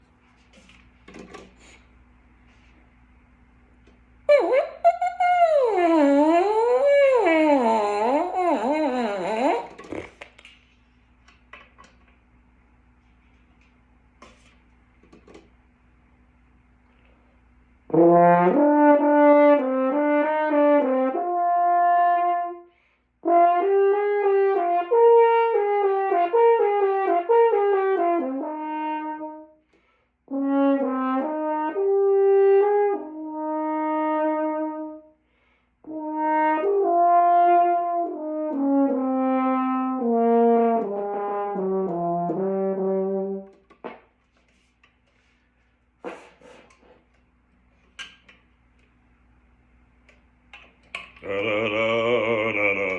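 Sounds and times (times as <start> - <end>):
brass instrument playing scales: 4.3 - 10.0, 17.9 - 22.6, 23.2 - 29.5, 30.3 - 35.1, 35.8 - 43.6.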